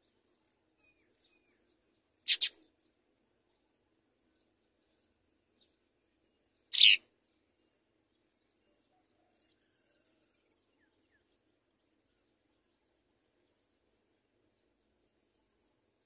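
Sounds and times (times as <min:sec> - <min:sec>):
sparrow chirp: 0:00.0 - 0:03.7, 0:04.3 - 0:09.4.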